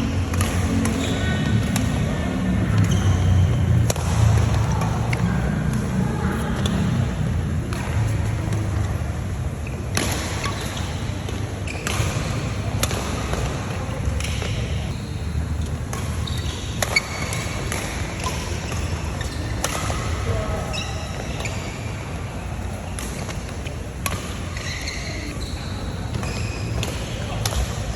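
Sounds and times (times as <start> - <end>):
steady low rumble: 0.0 - 10.1
rackets striking shuttlecock: 0.2 - 5.9, 9.9 - 15.0, 15.8 - 21.6, 22.9 - 25.4, 26.1 - 27.8.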